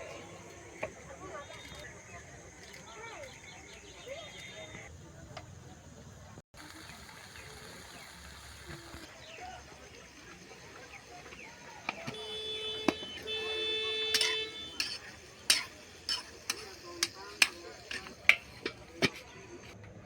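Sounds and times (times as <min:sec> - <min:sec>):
horn or buzzer tones: 0:12.1 - 0:15.0.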